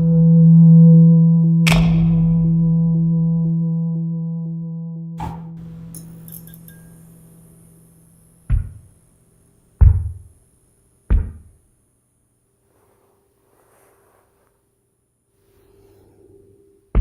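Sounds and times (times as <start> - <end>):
deep heavy knocks: 8.5 - 8.9, 9.8 - 10.3, 11.1 - 11.6.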